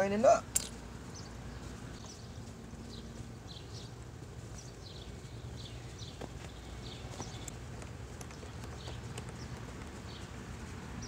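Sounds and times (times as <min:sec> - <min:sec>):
low steady hum: 0:00.0 - 0:11.0
small birds chirping: 0:00.0 - 0:11.0.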